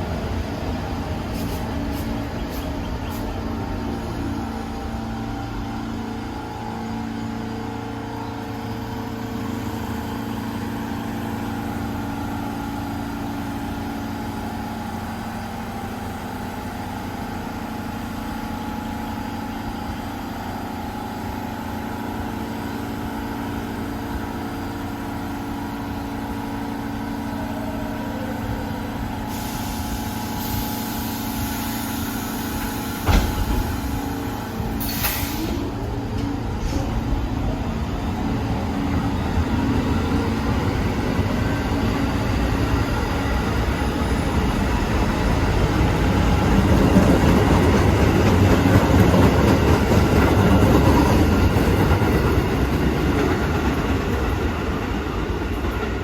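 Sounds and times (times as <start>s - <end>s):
train electrical hum: 0.0s - 56.0s
hiss: 29.3s - 35.7s
sharp clunk: 33.0s - 33.8s.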